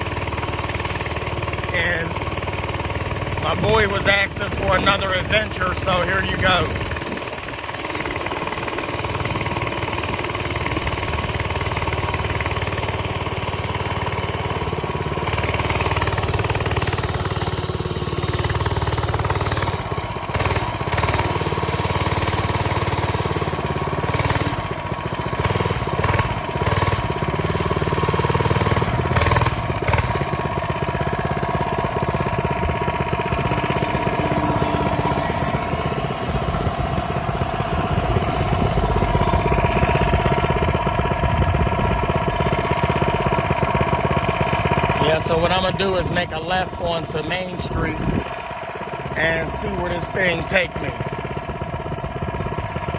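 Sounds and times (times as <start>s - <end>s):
small engine running steadily: 0.0s - 52.9s.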